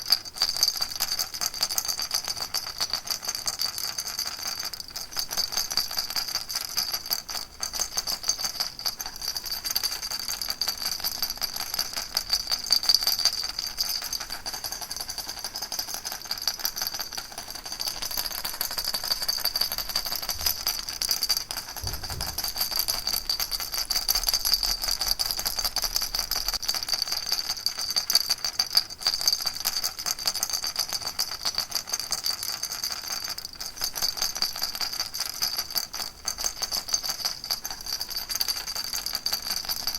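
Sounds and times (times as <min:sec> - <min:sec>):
baby rattle shaken: 0:00.0 - 0:30.0.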